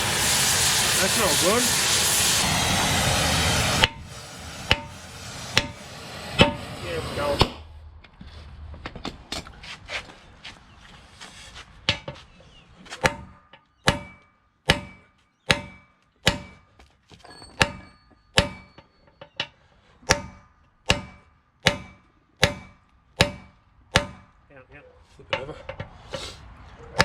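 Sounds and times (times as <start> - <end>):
hammer blows on steel: 3.3 - 7.7, 13.0 - 16.8, 17.5 - 24.3.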